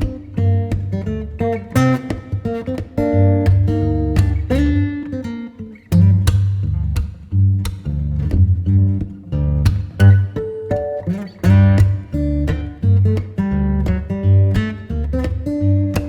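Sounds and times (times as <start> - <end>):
acoustic guitar music: 0.0 - 16.0
low bass notes: 3.0 - 4.9, 6.0 - 10.4, 11.4 - 16.0.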